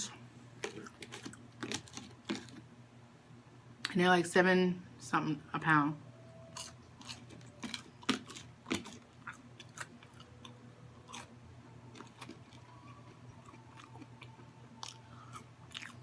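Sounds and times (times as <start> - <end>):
chewing crunchy food: 0.6 - 2.7, 6.5 - 16.0.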